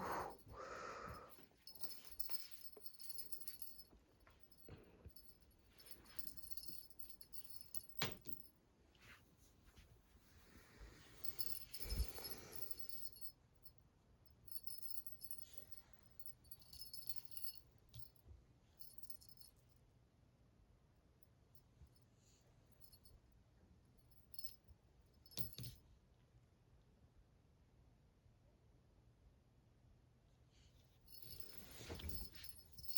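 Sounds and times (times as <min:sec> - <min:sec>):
small bell jingling: 0:00.1 - 0:08.5, 0:11.1 - 0:13.4, 0:14.3 - 0:18.2, 0:18.8 - 0:19.7, 0:24.0 - 0:24.6, 0:25.2 - 0:25.8, 0:31.1 - 0:32.9.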